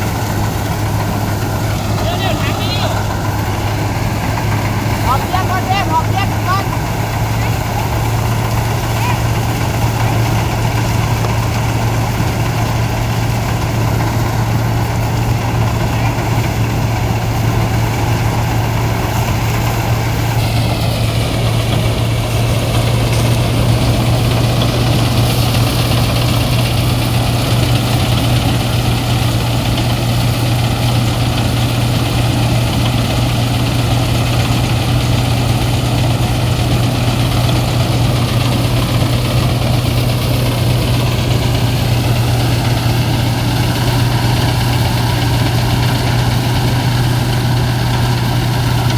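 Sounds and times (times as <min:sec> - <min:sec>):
threshing machine humming: 0:00.0 - 0:48.9.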